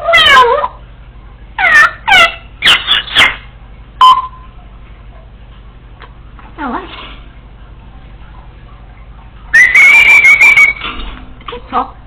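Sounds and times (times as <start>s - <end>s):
parrot barking calls: 0.0s - 0.8s, 1.6s - 3.5s, 9.5s - 10.9s.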